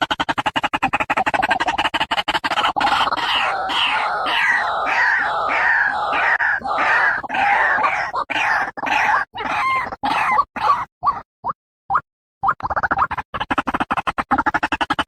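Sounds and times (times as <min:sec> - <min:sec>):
waterhen calling: 0:02.7 - 0:10.9.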